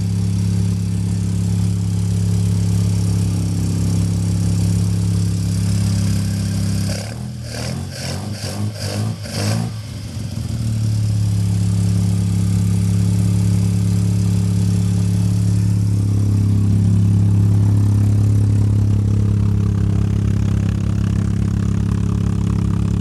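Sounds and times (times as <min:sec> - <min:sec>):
rotary engine idling: 0:10.0 - 0:23.0.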